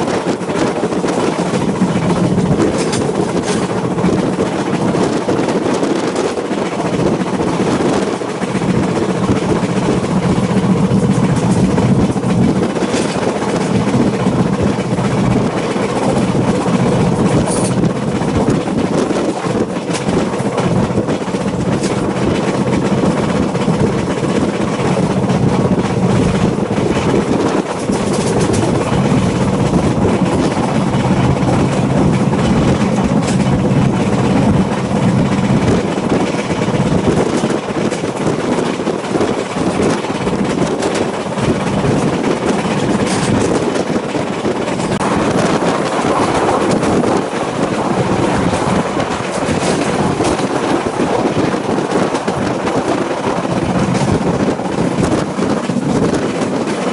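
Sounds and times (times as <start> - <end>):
train carriage rumbling and rattling: 0.0 - 56.9.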